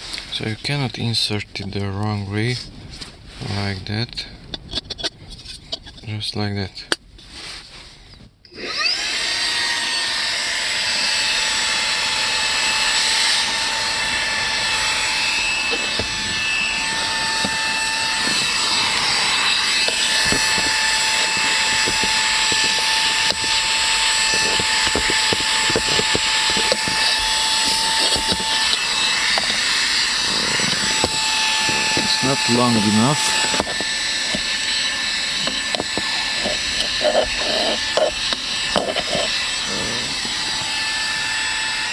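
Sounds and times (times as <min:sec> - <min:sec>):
vacuum cleaner whining: 0:08.5 - 0:41.9.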